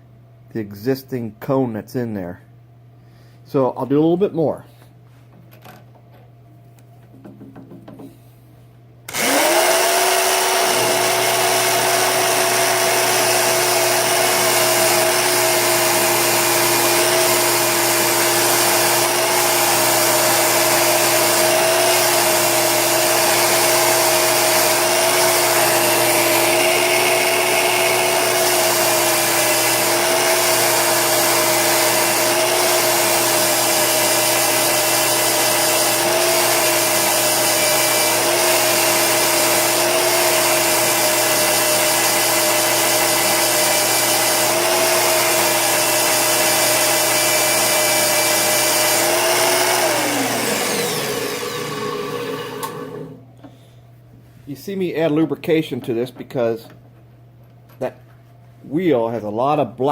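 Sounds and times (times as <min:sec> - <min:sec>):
electric drill whining: 0:09.1 - 0:53.2.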